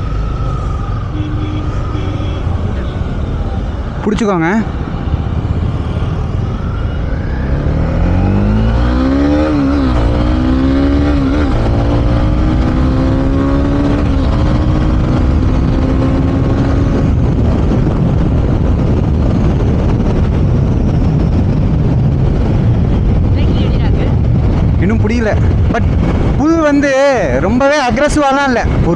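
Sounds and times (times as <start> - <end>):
wind rush on microphone: 0.0 - 28.9
motorcycle engine accelerating: 4.8 - 27.4.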